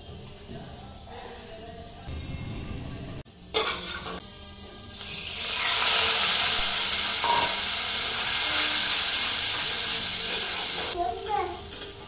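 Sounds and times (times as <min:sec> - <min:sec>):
lentils sizzling in hot oil: 0:04.9 - 0:11.0.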